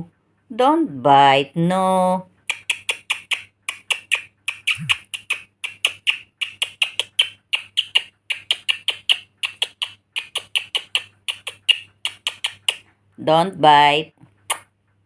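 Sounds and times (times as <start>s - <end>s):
parrot chirping: 2.4s - 12.9s.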